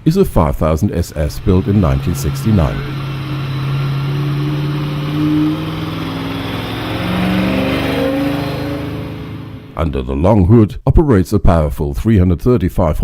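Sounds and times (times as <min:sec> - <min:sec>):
car engine revving: 0:00.0 - 0:09.9.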